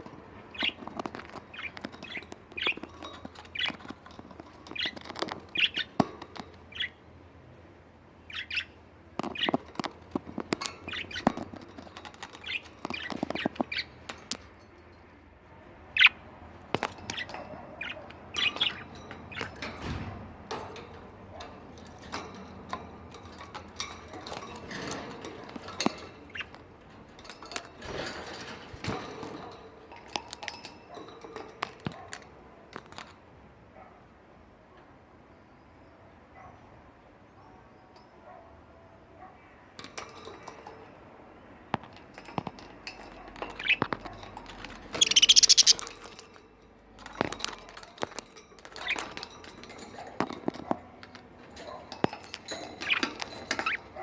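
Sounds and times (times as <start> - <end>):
budgerigars chirping: 0.5 - 7.0, 8.3 - 11.5, 12.2 - 14.0, 15.9 - 16.2, 16.8 - 19.6, 43.4 - 44.0, 44.9 - 45.9, 52.8 - 54.0.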